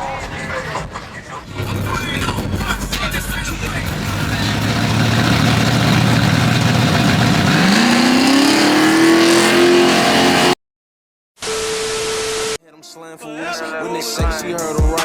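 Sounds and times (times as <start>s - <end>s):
car engine accelerating: 0.0s - 10.6s.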